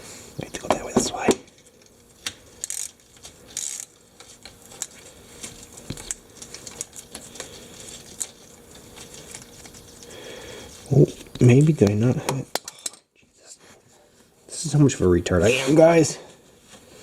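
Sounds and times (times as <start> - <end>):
ratchet wrench clicking: 2.6 - 3.9.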